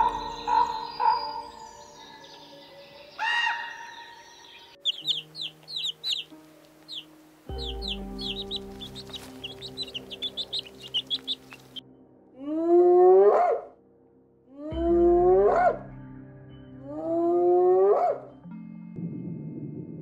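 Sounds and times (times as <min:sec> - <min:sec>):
ducklings peeping: 0:04.5 - 0:11.8.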